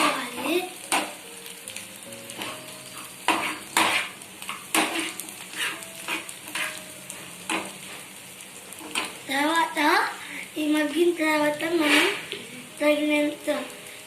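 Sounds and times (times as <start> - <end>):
onions sizzling in hot oil: 0.0 - 14.0
spoon scraping and knocking pan: 0.4 - 1.2, 2.3 - 8.0.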